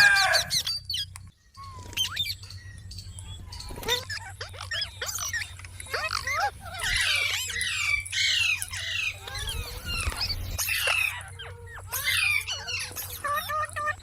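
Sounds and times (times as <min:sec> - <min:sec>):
parrot screeching: 0:00.0 - 0:00.8, 0:03.8 - 0:14.0.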